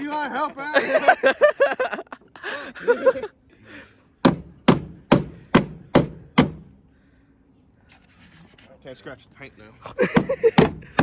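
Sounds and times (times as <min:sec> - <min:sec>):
hammer banging car body panel: 0:04.2 - 0:06.7, 0:10.0 - 0:11.0.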